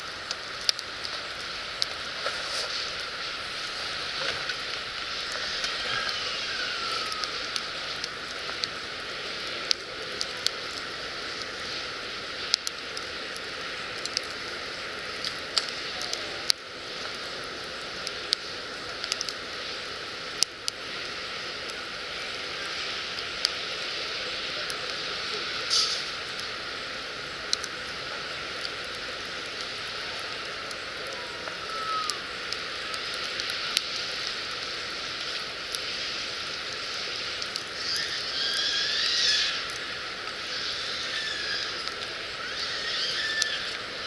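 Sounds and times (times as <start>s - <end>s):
fire pops and snaps: 0.0s - 11.6s, 12.4s - 14.4s, 15.2s - 17.2s, 18.0s - 19.4s, 24.6s - 26.6s, 27.5s - 27.9s, 28.6s - 40.5s
firewood crackling in campfire: 0.0s - 44.0s.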